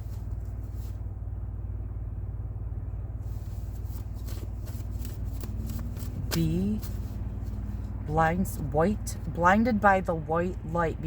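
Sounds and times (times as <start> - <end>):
faint rustles: 0.0 - 1.3, 3.2 - 8.1
car idling rumble: 0.0 - 11.0.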